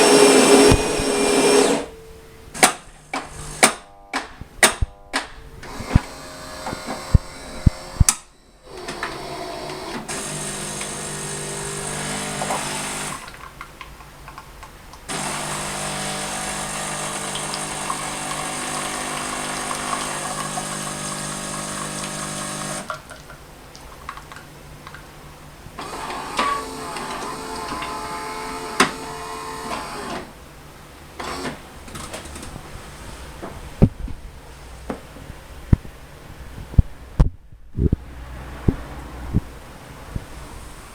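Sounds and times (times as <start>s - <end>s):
espresso machine motor humming: 0.0s - 1.9s, 8.7s - 13.3s, 15.1s - 22.9s, 25.8s - 30.2s.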